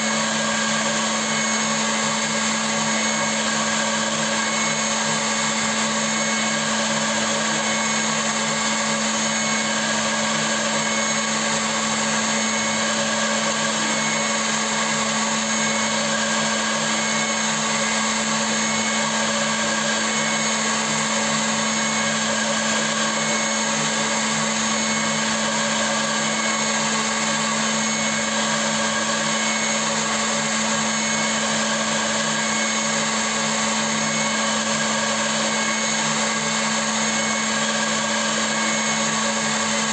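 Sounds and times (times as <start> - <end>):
milling machine motor hum: 0.0 - 39.9.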